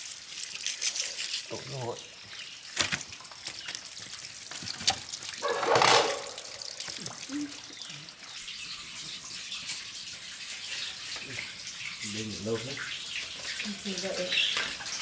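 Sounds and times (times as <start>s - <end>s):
water trickling and splashing: 0.0s - 15.0s
rush of water: 4.0s - 7.7s.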